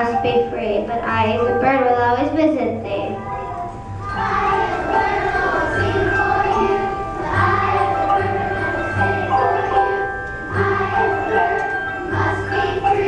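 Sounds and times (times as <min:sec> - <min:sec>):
school ensemble playing slow tune: 0:02.8 - 0:13.0.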